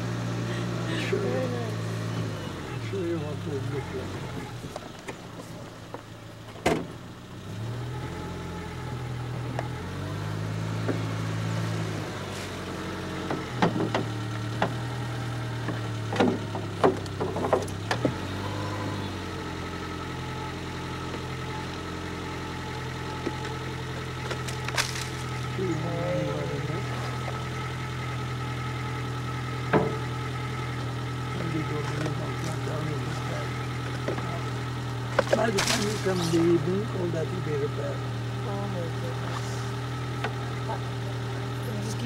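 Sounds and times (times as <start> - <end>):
vehicle engine running: 0.0 - 42.0
sharp knocks or rattles: 15.7 - 18.1.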